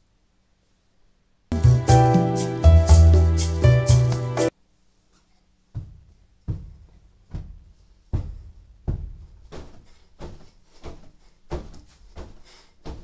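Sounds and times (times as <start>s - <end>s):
bedding rustling: 5.6s - 13.0s
soft thumps on a bed: 5.7s - 13.0s.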